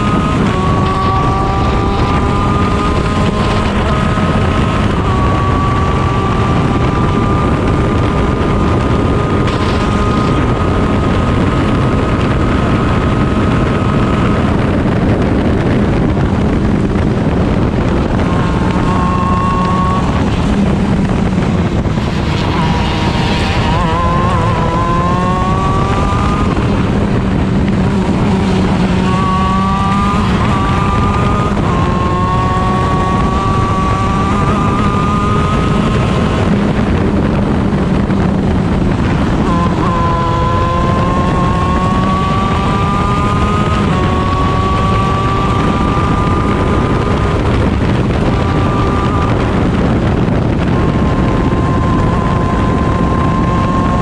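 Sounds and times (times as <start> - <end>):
kart engine at race speed: 0.0 - 54.0.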